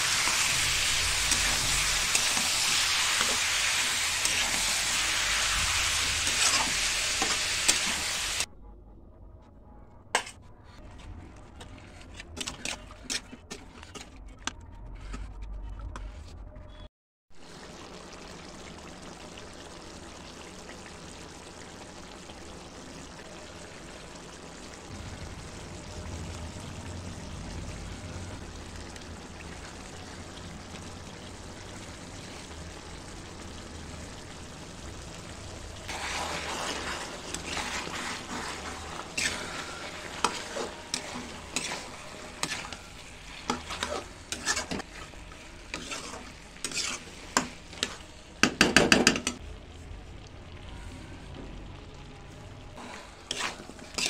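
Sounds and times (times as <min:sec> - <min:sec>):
curry sizzling in a pan: 0:00.0 - 0:08.5, 0:17.4 - 0:54.0
spatula scraping and knocking pan: 0:35.9 - 0:45.1, 0:45.7 - 0:49.4, 0:52.9 - 0:54.0.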